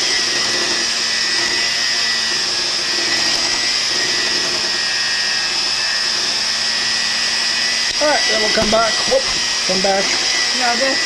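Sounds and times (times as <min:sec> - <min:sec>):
electric mixer whining: 0:00.0 - 0:11.0.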